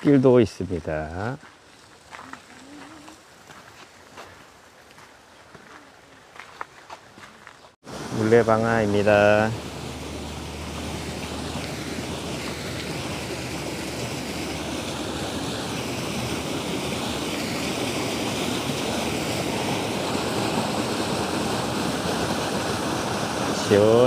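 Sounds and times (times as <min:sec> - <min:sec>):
water splashing at water wheel: 0:07.9 - 0:24.0.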